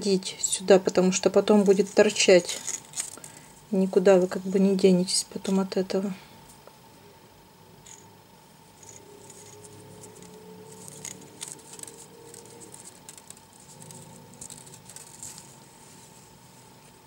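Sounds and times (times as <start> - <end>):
wire rustling and scraping clicks: 8.7 - 15.6.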